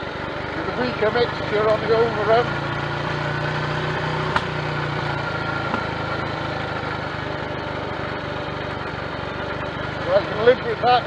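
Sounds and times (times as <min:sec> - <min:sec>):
motorcycle engine running: 0:00.0 - 0:11.0
engine backfire pop: 0:04.1 - 0:06.3.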